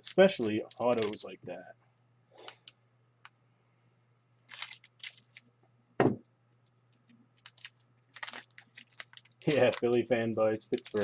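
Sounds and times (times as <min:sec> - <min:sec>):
cards clicking and rustling: 0:00.0 - 0:01.3, 0:04.5 - 0:05.4, 0:06.9 - 0:10.0, 0:10.6 - 0:11.0
knock on table: 0:06.0 - 0:06.2.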